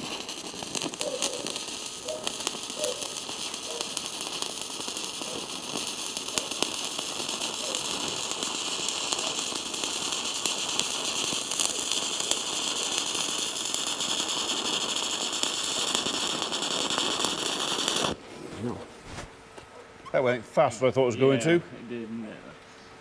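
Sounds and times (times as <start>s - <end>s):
welding arc crackling: 0.0s - 18.2s.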